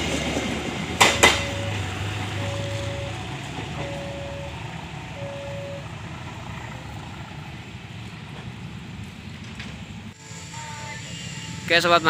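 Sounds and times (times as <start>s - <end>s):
train rumbling: 0.0s - 12.0s
electronic beep: 1.1s - 4.6s, 5.2s - 5.9s.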